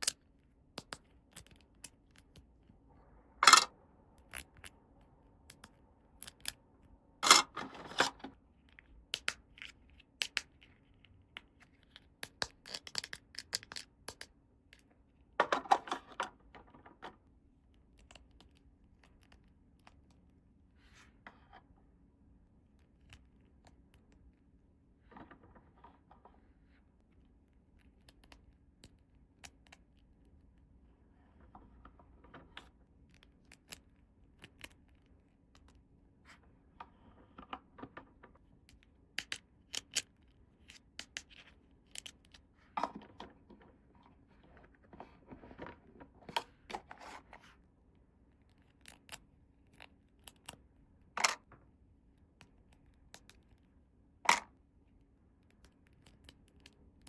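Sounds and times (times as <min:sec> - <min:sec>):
plastic toy pieces clicking: 0:03.4 - 0:03.7, 0:12.2 - 0:14.3.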